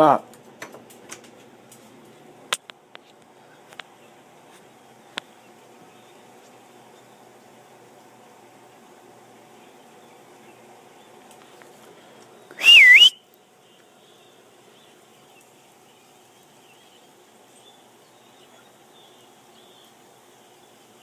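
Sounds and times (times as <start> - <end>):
faint bird chatter: 3.4 - 8.1, 8.7 - 12.6, 13.2 - 21.0
person whistling: 12.6 - 13.2.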